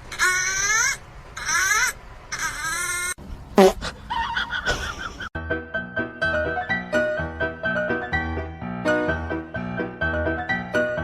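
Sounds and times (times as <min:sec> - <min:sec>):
piano music: 0:05.4 - 0:11.0.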